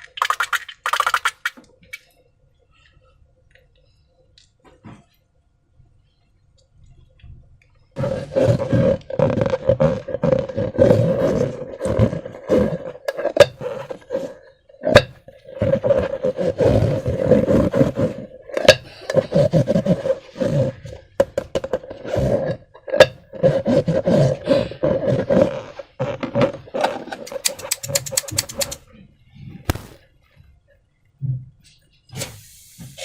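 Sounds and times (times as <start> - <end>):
slime squelching: 0.0 - 1.6, 27.3 - 28.8
slime popping: 29.7 - 30.0.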